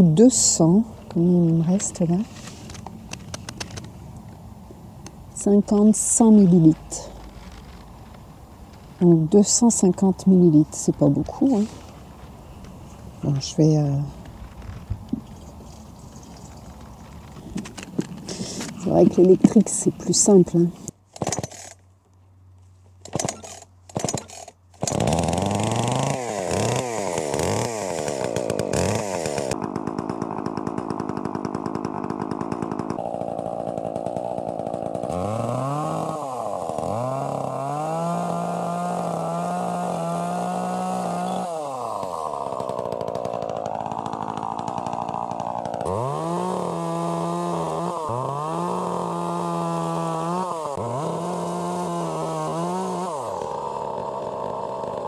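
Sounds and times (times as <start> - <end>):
chainsaw pull-start: 0.4 - 3.9, 10.8 - 12.3, 15.6 - 21.8, 23.0 - 55.0
chainsaw engine revving: 9.0 - 11.9, 18.0 - 21.8, 23.0 - 55.0.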